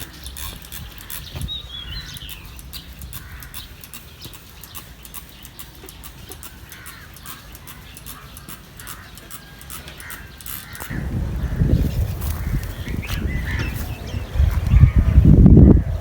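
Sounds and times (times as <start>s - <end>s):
small clicks and taps: 0.0s - 11.0s
birds calling: 0.0s - 16.0s.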